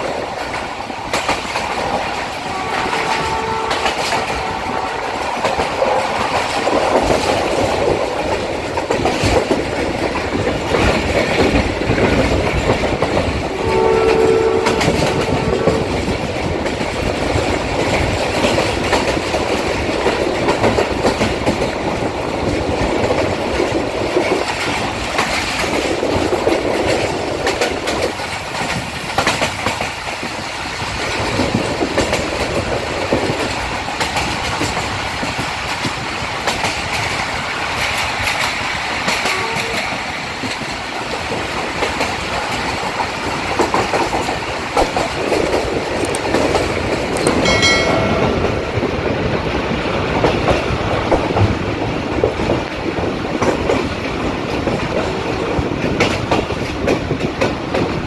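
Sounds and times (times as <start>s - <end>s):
train wheels rumbling and clattering: 0.0s - 58.0s
locomotive horn: 2.4s - 5.2s, 13.5s - 16.1s, 39.2s - 40.0s.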